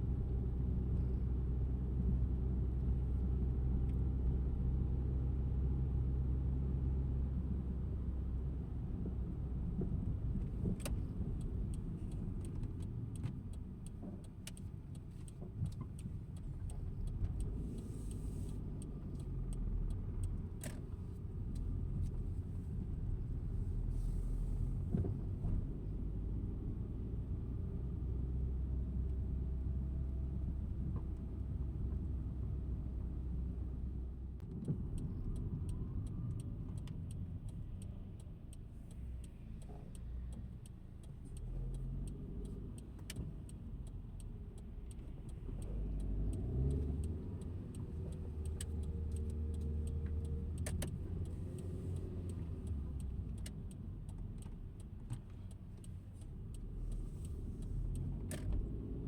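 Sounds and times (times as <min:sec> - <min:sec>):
car engine and road noise: 0:00.0 - 0:59.0
light clicks: 0:34.4 - 0:58.8.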